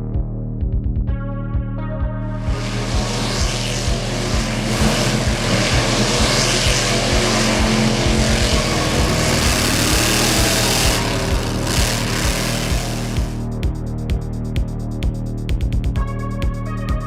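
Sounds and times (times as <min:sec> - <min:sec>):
background music with low beat: 0:00.0 - 0:17.0
engine and racing sound effects: 0:02.4 - 0:13.6.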